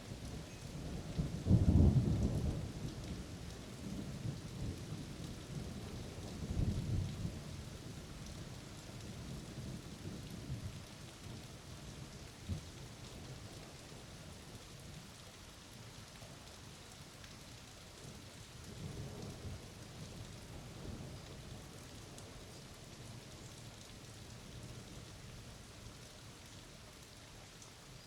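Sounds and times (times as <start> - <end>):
steady rain: 0.0 - 28.0.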